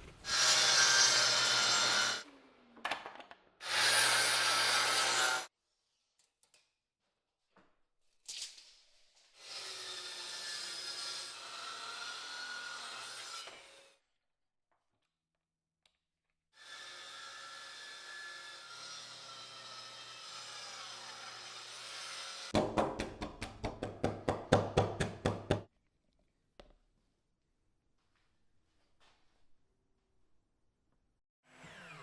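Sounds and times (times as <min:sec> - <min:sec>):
power tool sanding wood: 0:00.2 - 0:02.2, 0:03.6 - 0:05.5.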